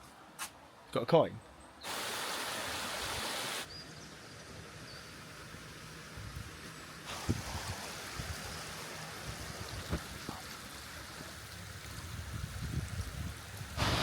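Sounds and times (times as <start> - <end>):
stream rushing over rocks: 1.8 - 3.7, 7.0 - 12.3, 13.4 - 14.0.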